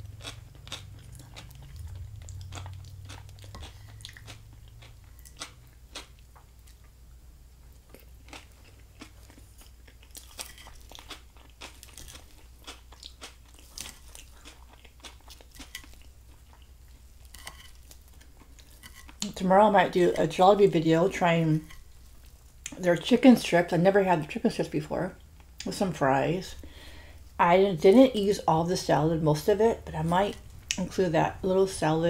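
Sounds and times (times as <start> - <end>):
person chewing crunchy food: 0.0 - 7.0, 7.7 - 19.3.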